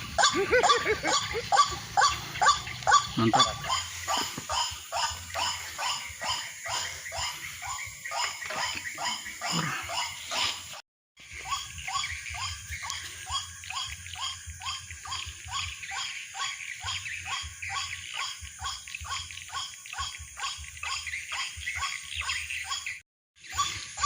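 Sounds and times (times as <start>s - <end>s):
waterhen calling: 0.0s - 10.5s.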